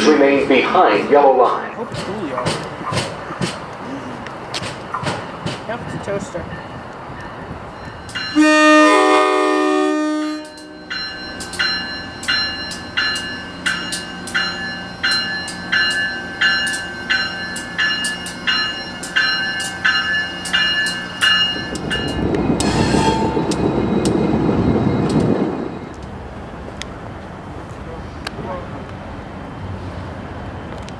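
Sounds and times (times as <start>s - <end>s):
train passing rumble: 0.0s - 30.9s
bell ringing: 5.8s - 9.0s, 10.3s - 26.0s
train horn chord: 8.2s - 11.0s, 22.6s - 23.6s.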